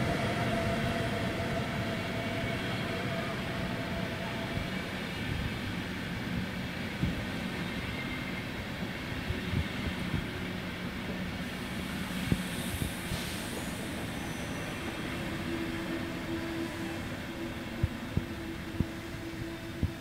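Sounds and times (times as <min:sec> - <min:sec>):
train rolling slowly: 0:00.0 - 0:20.0
brief hiss: 0:11.8 - 0:15.1.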